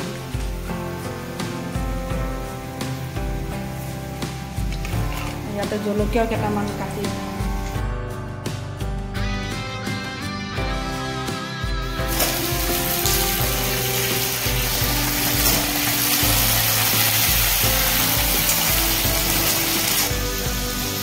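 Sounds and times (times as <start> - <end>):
potatoes sizzling in hot oil: 0.0 - 7.8, 12.0 - 21.0
background music: 0.0 - 21.0.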